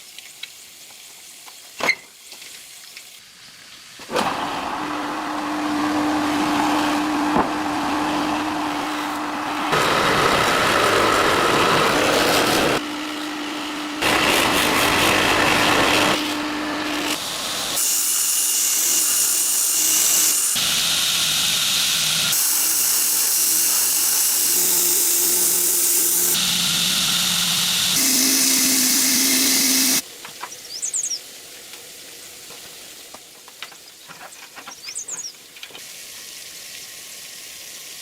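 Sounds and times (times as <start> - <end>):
power tool running: 4.1 - 30.0.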